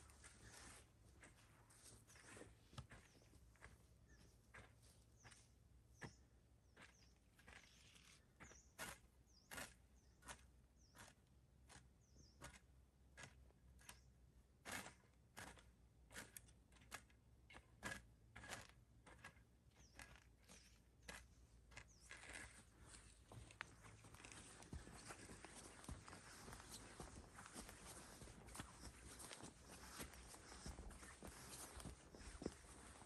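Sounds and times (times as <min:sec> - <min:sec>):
footsteps walking: 0:00.0 - 0:05.4, 0:21.1 - 0:33.0.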